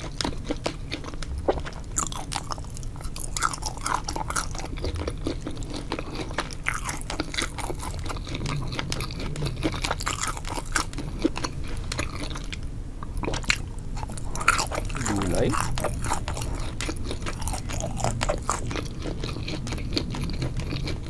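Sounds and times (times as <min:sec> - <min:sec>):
person biting and chewing food: 0:00.0 - 0:21.0.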